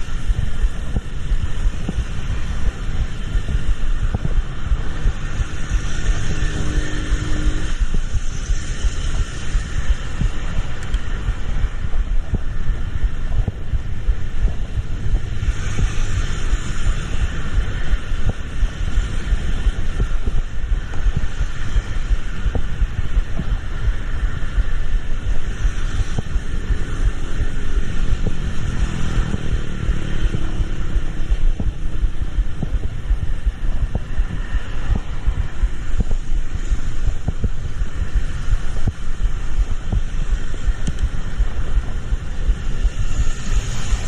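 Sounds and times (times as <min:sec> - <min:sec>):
vehicle rumble: 0:00.0 - 0:44.0
wind buffeting microphone: 0:00.0 - 0:44.0
faint engine tone: 0:06.0 - 0:08.0.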